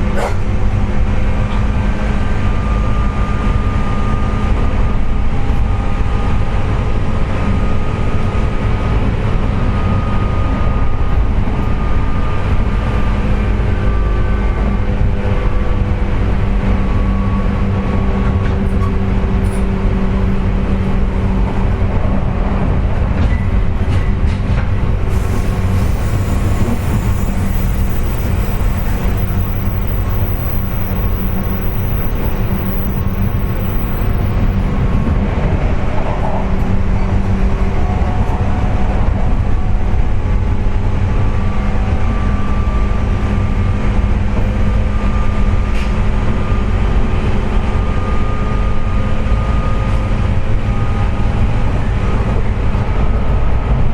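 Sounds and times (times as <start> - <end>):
wheels rumbling on rail: 10.6 - 41.3
train motor whining drone: 24.7 - 35.1.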